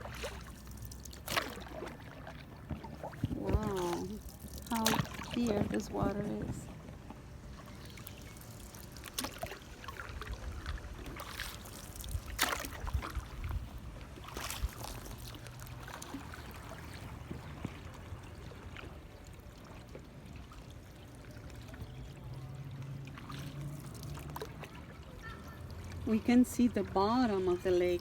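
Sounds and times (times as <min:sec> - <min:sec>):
water dripping: 0:00.0 - 0:07.1
canoe paddle splashing in water: 0:00.0 - 0:28.0.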